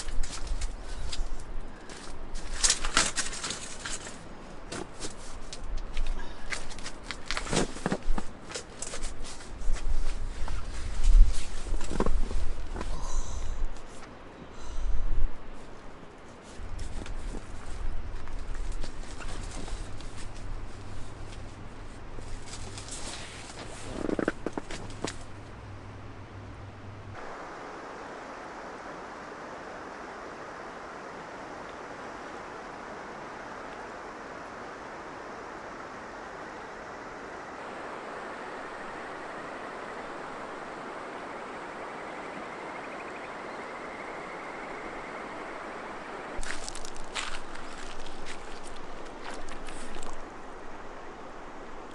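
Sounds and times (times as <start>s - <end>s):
river rushing: 27.1s - 51.9s.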